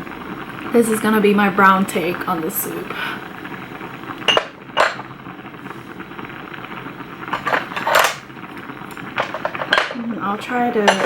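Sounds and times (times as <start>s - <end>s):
utensil clinking against pot: 4.2s - 5.1s, 7.3s - 8.3s, 8.9s - 10.1s, 10.7s - 11.0s.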